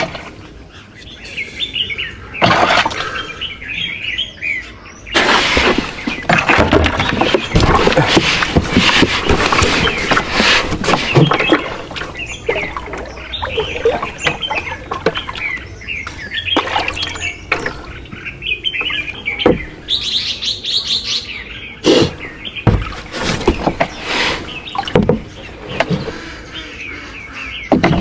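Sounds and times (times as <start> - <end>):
small birds chirping: 0.0 - 28.0
knocks and clatter: 27.7 - 28.0.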